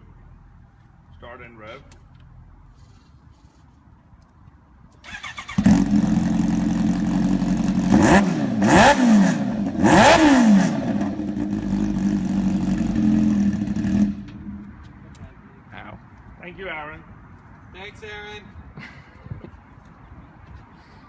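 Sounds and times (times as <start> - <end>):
motorcycle engine starter cranking: 5.0 - 6.0
motorcycle engine idling and revving: 5.0 - 15.3.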